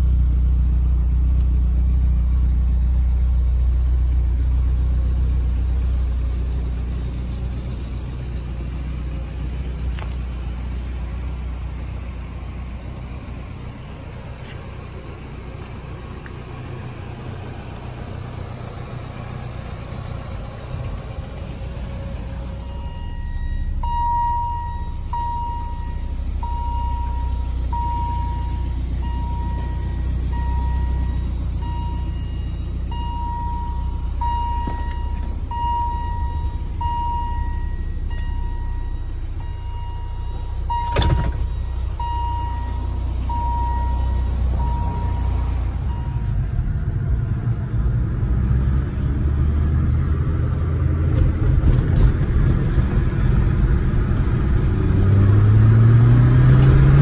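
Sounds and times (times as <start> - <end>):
car engine rumbling: 0.0 - 57.0
dashboard warning chime beeping: 21.8 - 46.5.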